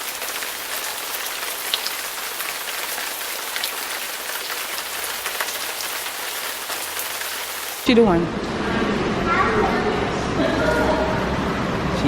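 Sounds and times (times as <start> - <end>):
heavy rain pouring: 0.0 - 7.9.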